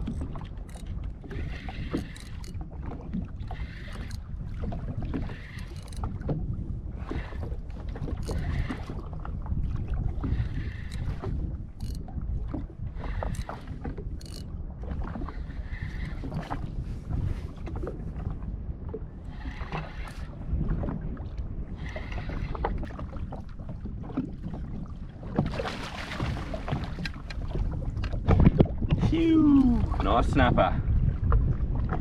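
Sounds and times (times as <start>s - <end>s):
water slapping boat hull: 0.0s - 32.0s
wind rumbling on microphone: 0.0s - 32.0s.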